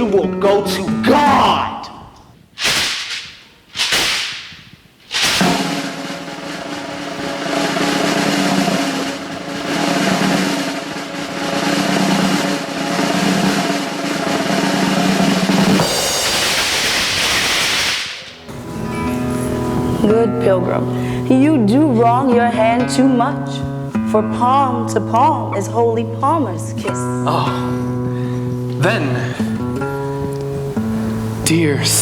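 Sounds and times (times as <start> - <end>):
sharp drum hits: 2.6 - 19.1
sustained drum roll: 5.1 - 20.8
steady low tones: 5.4 - 17.3.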